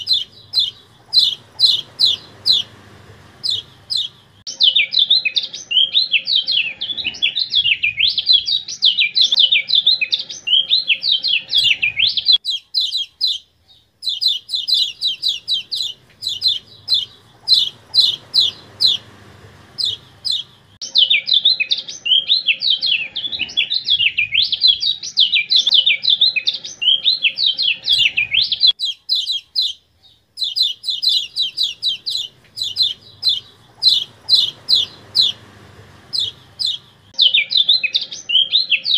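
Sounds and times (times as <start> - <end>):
sharp bird chip notes: 0.0 - 2.8, 14.0 - 19.1
small bird warbling song: 0.0 - 38.9.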